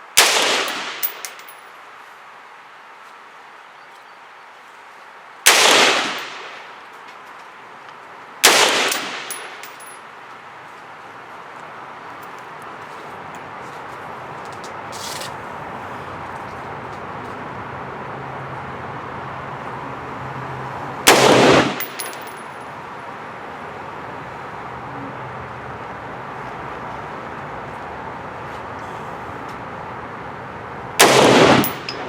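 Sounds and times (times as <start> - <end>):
steady background hiss: 0.0 - 17.6
rifle shot with echo: 0.2 - 1.4, 5.5 - 6.6, 8.4 - 9.7, 21.1 - 22.2, 31.0 - 32.0.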